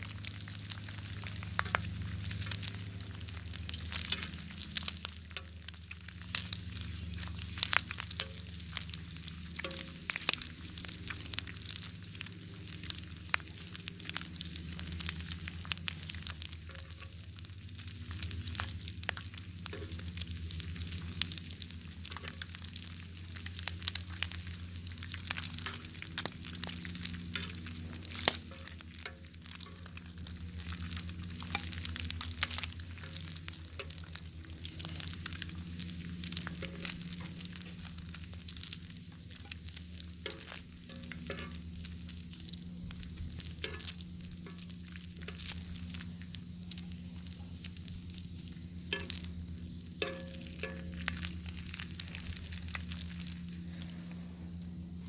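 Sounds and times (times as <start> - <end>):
bacon sizzling: 0.0 - 55.0
fire popping and crackling: 0.0 - 55.0
low hum: 0.0 - 55.0.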